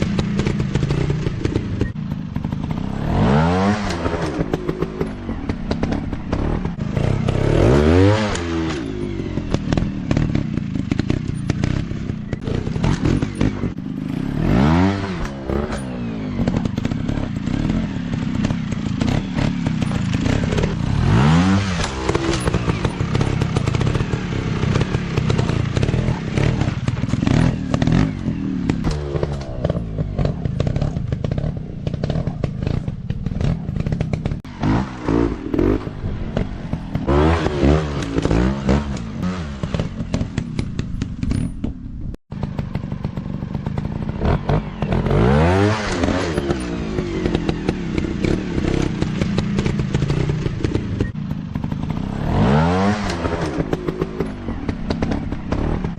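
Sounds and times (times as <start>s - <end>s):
dirt bike engines revving: 0.0s - 55.9s
rattling clicks and knocks: 37.9s - 44.6s.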